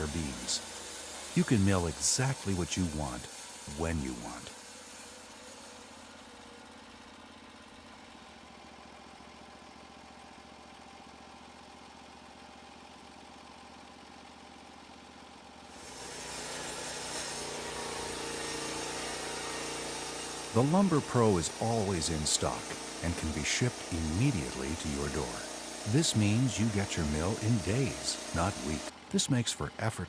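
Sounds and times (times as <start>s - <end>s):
sawmill engine running: 0.0s - 12.0s, 15.7s - 30.0s.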